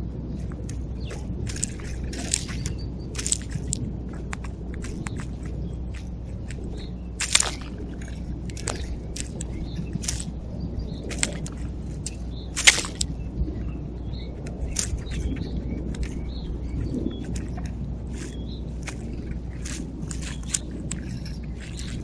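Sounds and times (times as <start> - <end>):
birds clicking and chirping: 0.0 - 22.0
steady low hum: 0.0 - 22.0.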